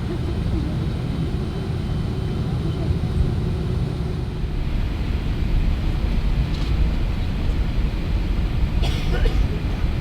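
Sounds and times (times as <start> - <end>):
jet engine rumble in cabin: 0.0 - 10.0.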